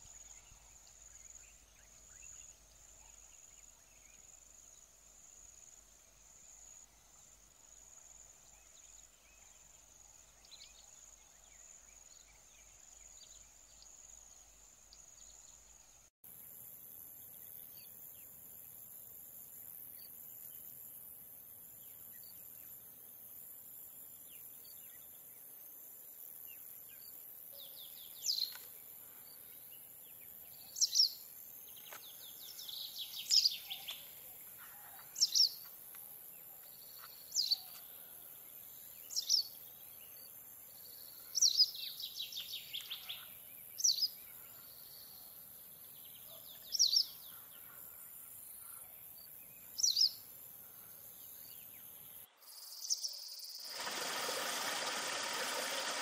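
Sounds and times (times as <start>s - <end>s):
insects hissing: 49.2s - 56.0s
running water: 53.7s - 56.0s.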